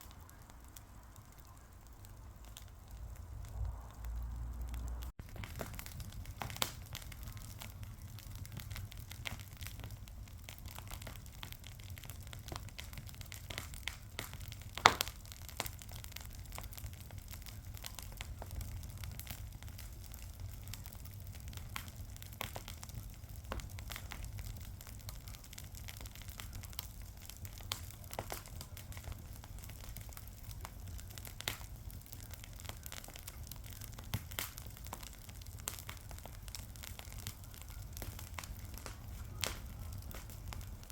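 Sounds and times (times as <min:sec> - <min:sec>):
fire crackling and popping: 0:00.0 - 0:40.9
low steady rumble: 0:00.9 - 0:11.8.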